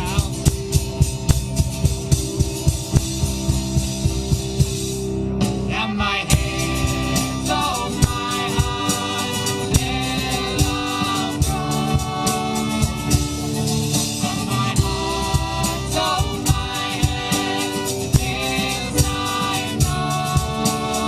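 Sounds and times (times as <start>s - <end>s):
drum kit beat: 0.0s - 21.0s
guitar and bass chords: 0.0s - 21.0s
person singing: 5.7s - 21.0s.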